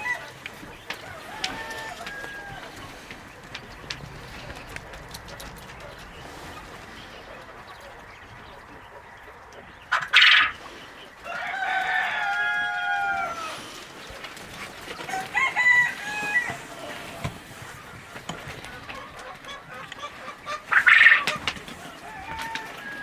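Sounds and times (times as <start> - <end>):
rooster crowing: 0.0 - 2.9, 11.2 - 13.7, 15.0 - 17.3, 21.9 - 23.0
chickens clucking: 0.0 - 23.0.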